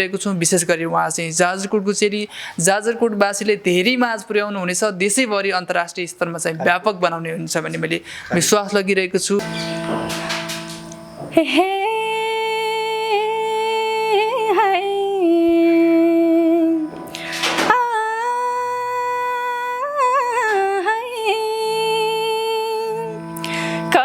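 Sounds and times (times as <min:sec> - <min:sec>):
steady backing drone: 0:09.4 - 0:11.8, 0:16.0 - 0:18.4
woman singing wordless notes: 0:10.9 - 0:24.0.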